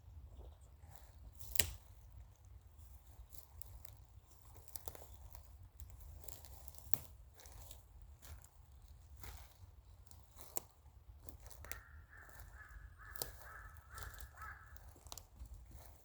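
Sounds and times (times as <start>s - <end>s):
woodpecker pecking at wood: 11.5s - 15.3s.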